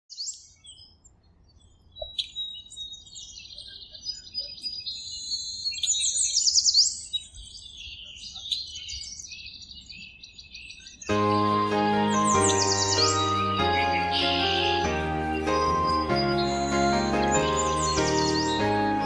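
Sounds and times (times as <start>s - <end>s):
birds chirping and singing: 0.1s - 19.0s
quick sweeping bird notes: 11.1s - 19.0s.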